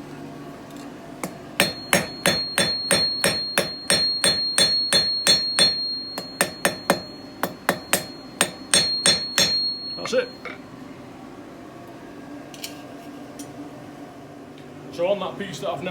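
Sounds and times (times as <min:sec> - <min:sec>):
hammer striking steel on anvil: 0:01.2 - 0:10.6
high metallic ring: 0:01.2 - 0:10.6.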